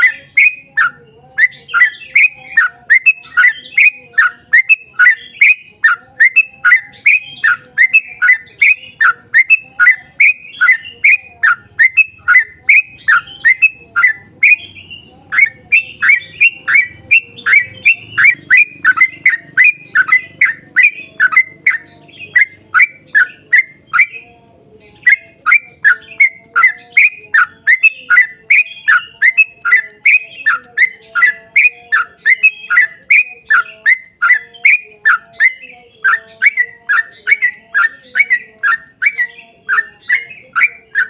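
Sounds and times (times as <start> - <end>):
bird singing bubbly notes: 0.0 - 41.0.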